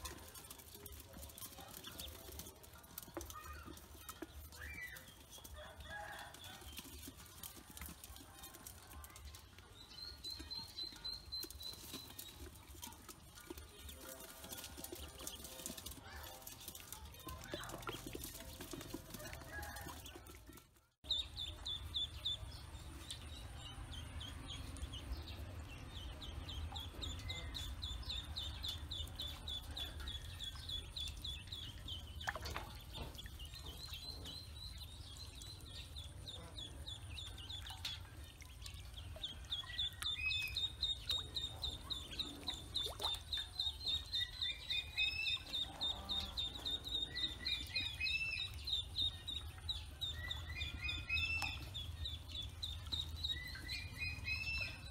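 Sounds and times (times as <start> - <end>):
ducklings peeping: 21.1 - 54.9.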